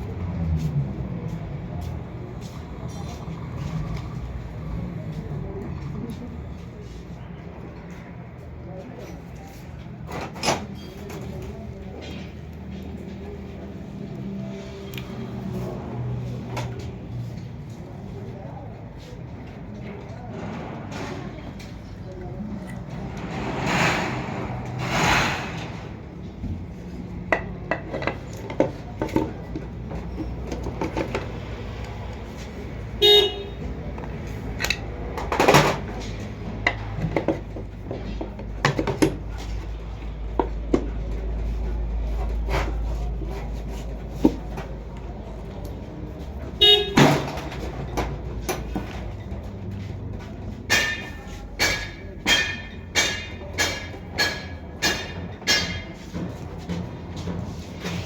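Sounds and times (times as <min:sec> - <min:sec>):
vehicle horn toots: 0:33.0 - 0:33.7, 0:46.6 - 0:47.2.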